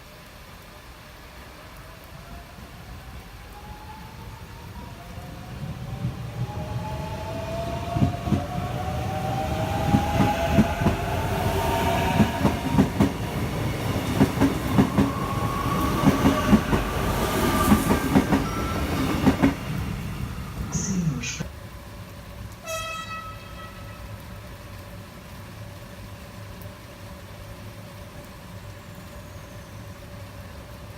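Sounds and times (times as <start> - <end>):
train passing on rails: 0.1 - 30.9.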